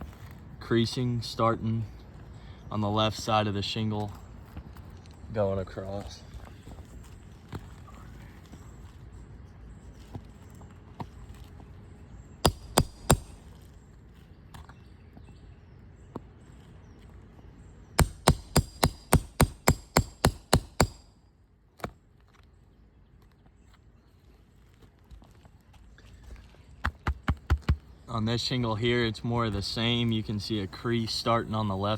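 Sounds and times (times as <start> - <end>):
hammer blows on roof: 12.4 - 13.4, 18.0 - 21.1.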